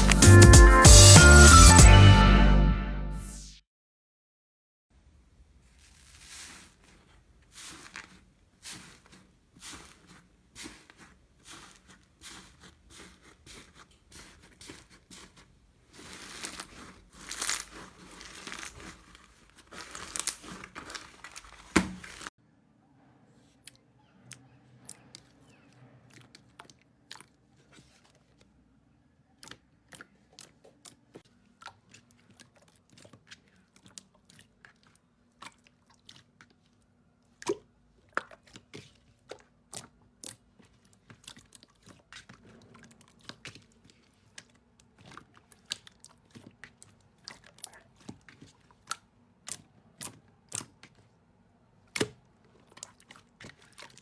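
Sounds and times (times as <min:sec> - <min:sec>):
slime crackling and popping: 0:07.5 - 0:22.3.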